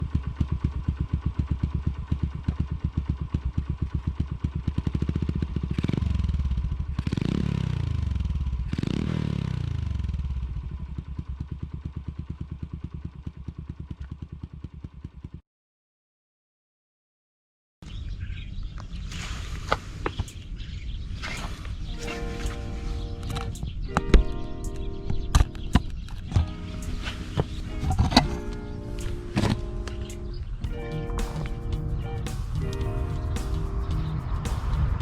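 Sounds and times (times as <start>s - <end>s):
motorcycle engine idling and revving: 0.0s - 15.4s, 25.7s - 35.0s.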